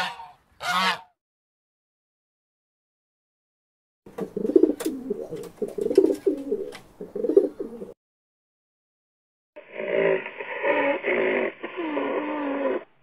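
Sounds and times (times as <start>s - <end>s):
pigeon cooing: 4.2s - 8.0s.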